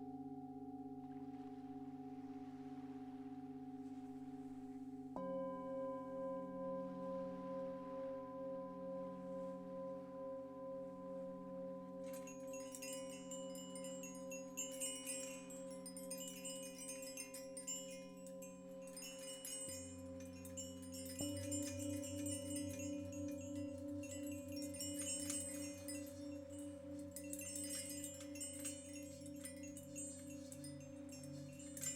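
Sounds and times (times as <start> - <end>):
singing bowls ringing: 5.2 - 31.9
chimes tinkling: 12.0 - 31.9.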